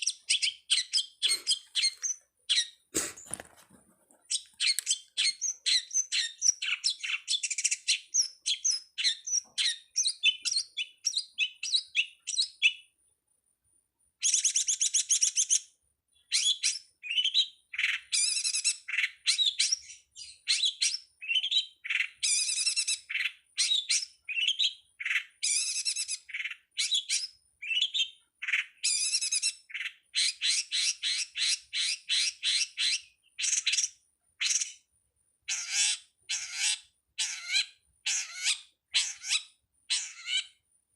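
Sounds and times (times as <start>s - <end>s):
bird singing chirps and trills: 0.0s - 2.8s, 4.3s - 12.9s, 14.2s - 34.9s, 35.5s - 40.6s.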